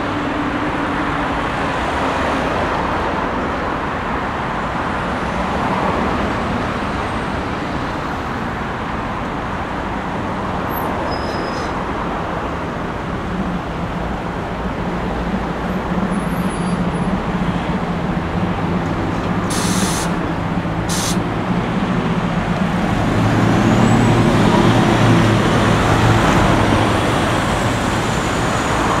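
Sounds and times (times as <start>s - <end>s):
road traffic: 0.0s - 29.0s
freight train rumbling past: 11.7s - 29.0s
short high hissing bursts: 19.5s - 20.2s, 20.9s - 21.2s.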